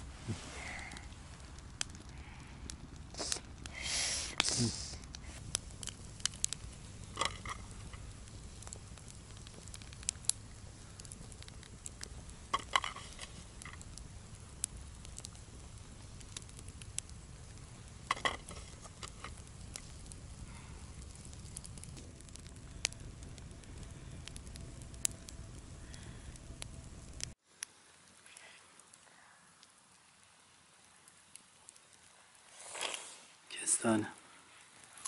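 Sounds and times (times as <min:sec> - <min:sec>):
campfire crackling: 0:00.0 - 0:35.0
low rumble: 0:04.8 - 0:27.4.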